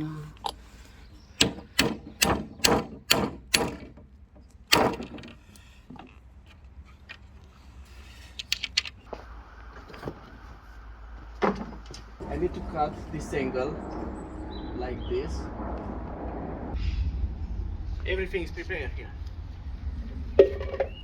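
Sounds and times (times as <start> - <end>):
knocking blows: 1.4 - 4.1, 4.7 - 5.4.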